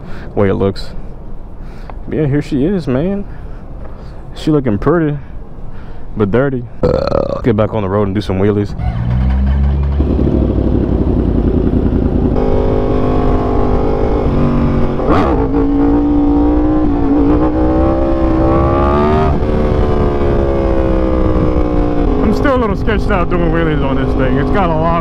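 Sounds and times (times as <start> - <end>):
motorcycle engine revving hard: 9.0 - 22.4.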